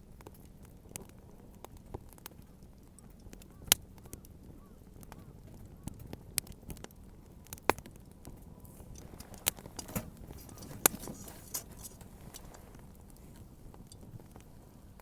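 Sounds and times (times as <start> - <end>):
wood bonfire crackling: 0.0 - 15.0
faint hiss: 8.6 - 15.0.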